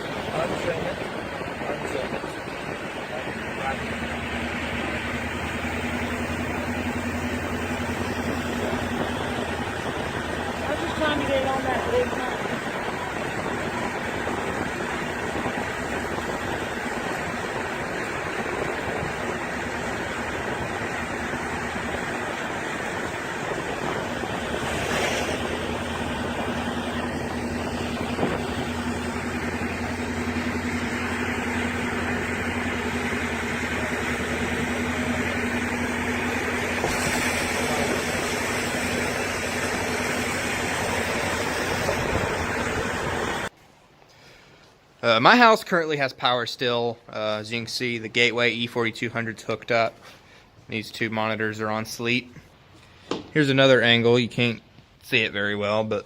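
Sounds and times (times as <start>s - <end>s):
heavy rain on vehicle: 0.0s - 43.5s
low engine drone: 0.0s - 43.5s
rushing road noise: 0.0s - 43.6s.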